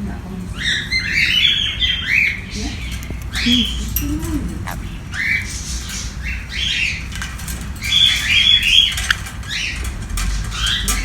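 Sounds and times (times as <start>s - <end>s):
parrot chirps and squawks: 0.6s - 7.0s.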